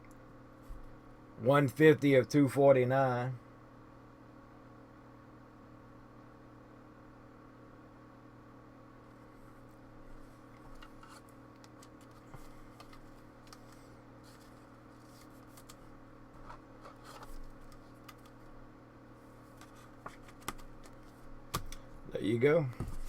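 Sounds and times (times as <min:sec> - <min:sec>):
steady low hum: 0:00.0 - 0:23.0
trading cards being handled: 0:10.6 - 0:18.5, 0:19.5 - 0:21.8.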